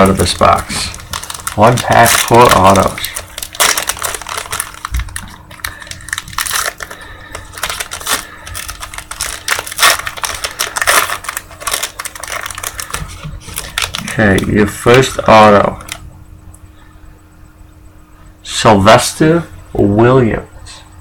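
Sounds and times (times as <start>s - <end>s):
card pack wrapper tearing: 0.0s - 16.0s.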